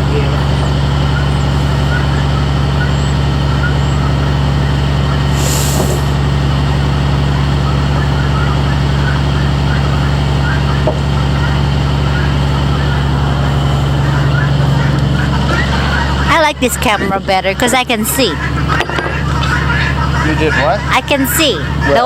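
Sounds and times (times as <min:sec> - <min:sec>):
road noise: 0:00.0 - 0:22.0
truck engine drone: 0:00.0 - 0:22.0
brief hiss: 0:05.4 - 0:06.1.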